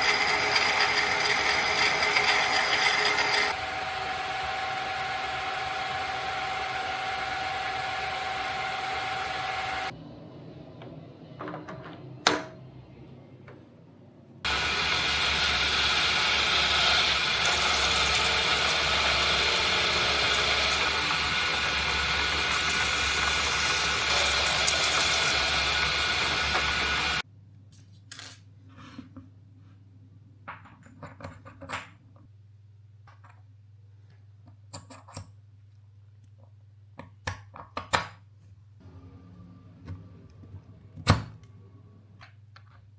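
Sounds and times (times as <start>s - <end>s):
metal lathe whining: 0.0s - 9.9s, 14.5s - 27.2s.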